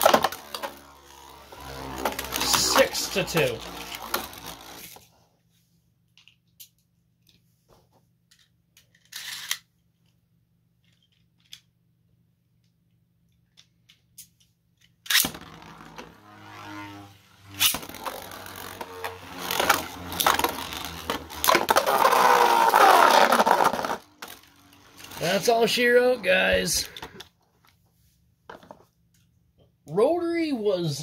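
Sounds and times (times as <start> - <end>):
spinning tops whirring: 0.0 - 5.1, 15.1 - 27.2.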